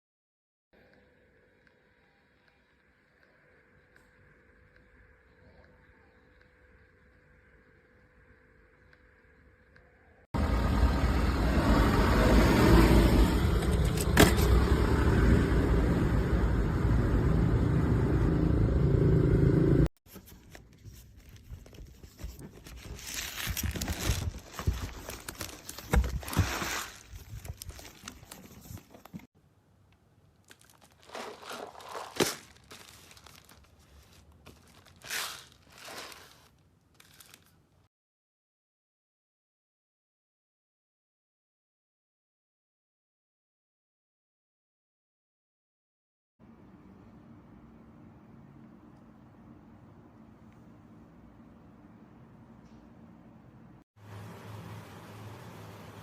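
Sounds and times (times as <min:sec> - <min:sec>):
plastic packaging crinkling and tearing: 0:20.1 - 0:29.3, 0:30.4 - 0:37.6.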